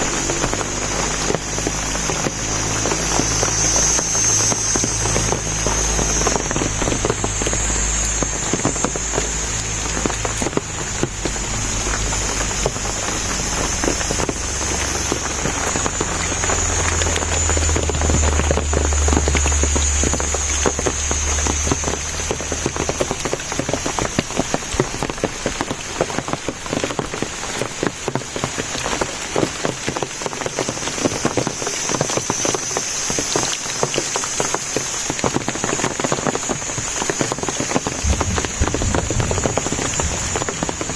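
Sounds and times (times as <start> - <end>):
low rumble: 0.0 - 25.9, 37.7 - 40.9
high-pitched whine: 0.0 - 27.1, 29.6 - 40.9
rain pattering: 0.0 - 40.9.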